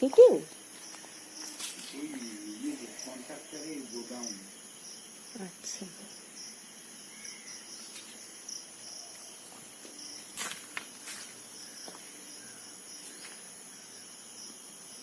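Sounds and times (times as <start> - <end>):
insects chirring: 0.0 - 15.0
short repeating insect chirp: 0.0 - 15.0.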